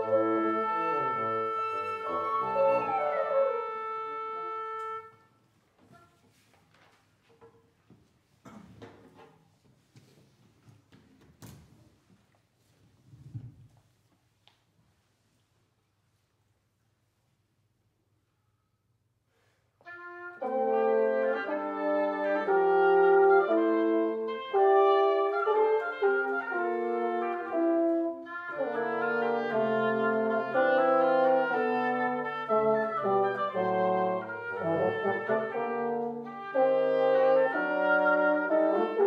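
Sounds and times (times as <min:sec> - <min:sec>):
wind quintet playing: 0:00.0 - 0:06.2, 0:19.8 - 0:39.0.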